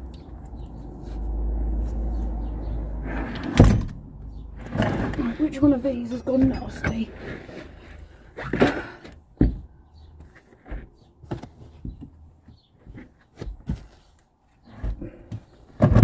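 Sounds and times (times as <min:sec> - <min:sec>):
hard objects knocking and clunking: 0:08.4 - 0:14.0, 0:14.7 - 0:16.0.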